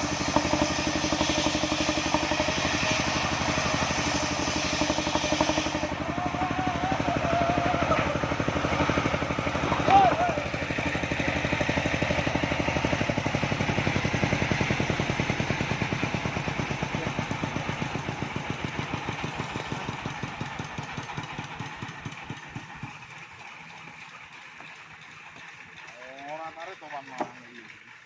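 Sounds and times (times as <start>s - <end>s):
engine chugging: 0.0s - 28.0s.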